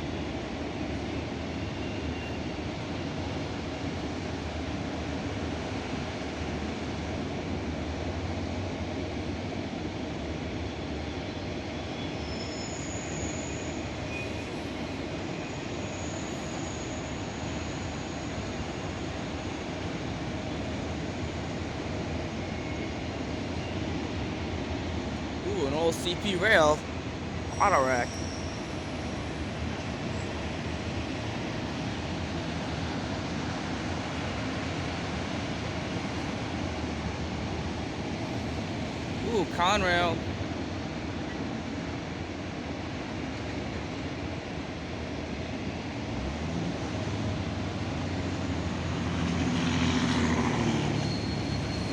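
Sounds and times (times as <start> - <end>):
high-pitched wheel squeals: 51.0 - 51.9.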